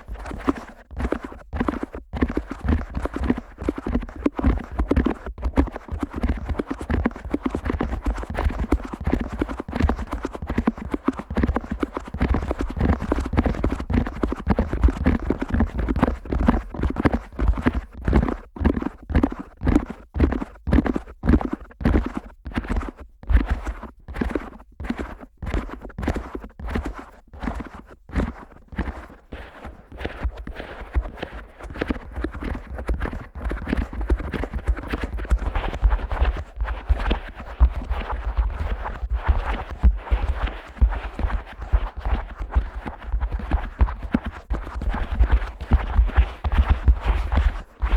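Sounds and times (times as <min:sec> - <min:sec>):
fingers tapping microphone ears: 0:00.0 - 0:47.9.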